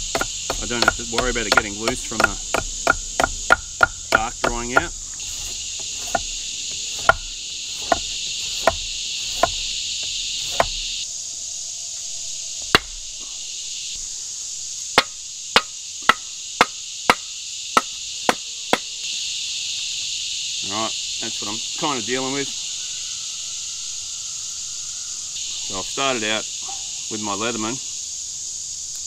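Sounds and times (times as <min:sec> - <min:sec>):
wooden baton knocking on knife: 0:00.0 - 0:10.8, 0:12.7 - 0:13.0
high insect drone: 0:00.0 - 0:29.0.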